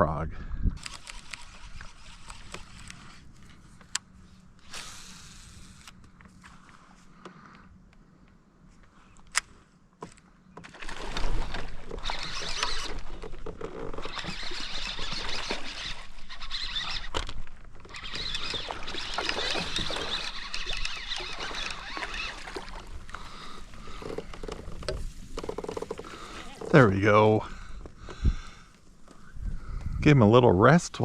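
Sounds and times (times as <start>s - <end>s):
water splashing near kayak: 10.6s - 29.2s.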